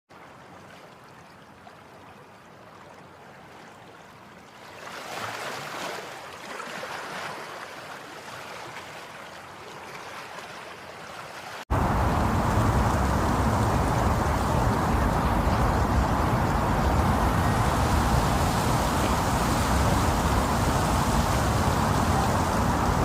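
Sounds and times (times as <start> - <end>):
rushing floodwater: 0.2 - 23.0
loud rough noise: 11.7 - 23.0.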